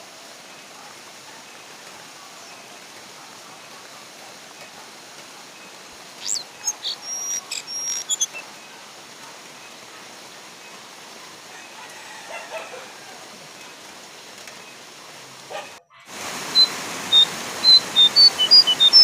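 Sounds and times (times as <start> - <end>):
rain hiss: 0.0 - 19.0
bird whistling call: 6.2 - 8.4, 16.5 - 19.0.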